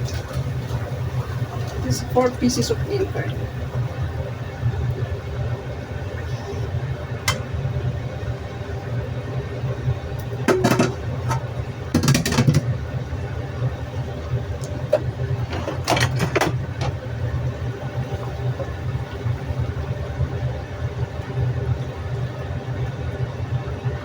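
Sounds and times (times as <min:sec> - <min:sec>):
low kitchen rumble: 0:00.0 - 0:24.0
utensil clattering against wok: 0:10.5 - 0:12.7.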